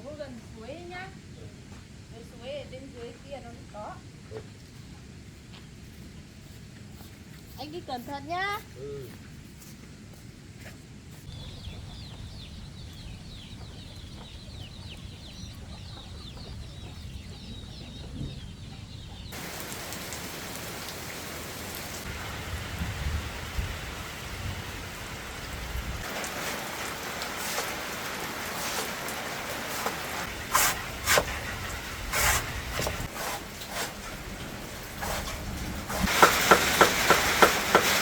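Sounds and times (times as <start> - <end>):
chicks peeping: 11.3 - 19.4
heavy rain hissing: 19.3 - 38.0.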